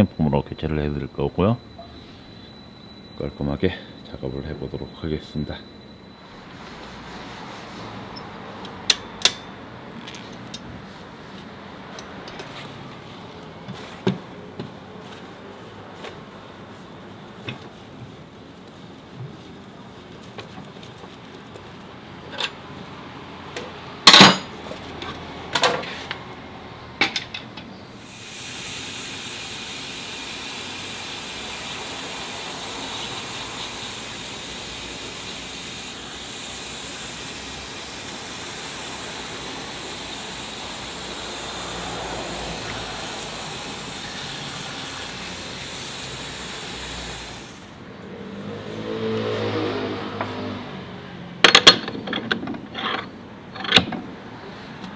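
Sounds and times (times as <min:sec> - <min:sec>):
hiss of air or spray: 0:28.0 - 0:47.8
sharp metal knocks: 0:51.4 - 0:52.8.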